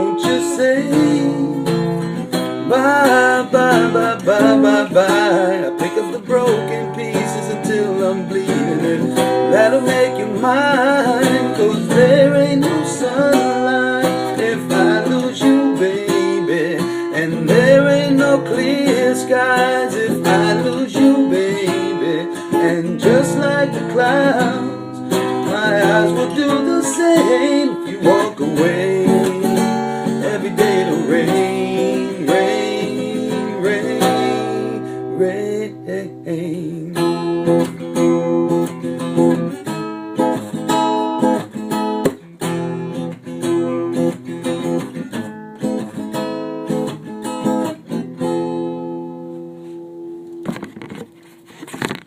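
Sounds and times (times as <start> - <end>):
person singing: 0.0 - 37.1
acoustic guitar strumming: 0.0 - 52.0.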